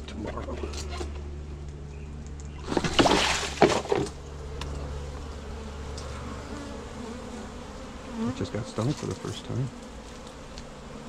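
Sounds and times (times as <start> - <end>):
honey bees buzzing: 0.0 - 11.0
knocks and scraping of hive: 2.5 - 11.0.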